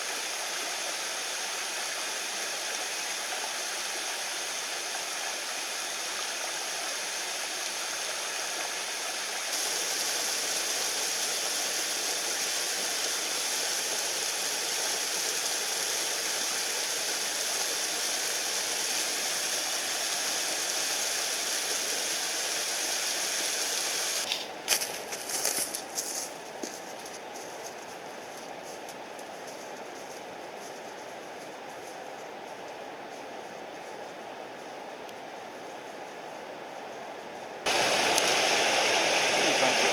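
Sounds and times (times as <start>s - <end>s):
stream rushing over rocks: 0.0s - 24.3s, 37.7s - 39.9s.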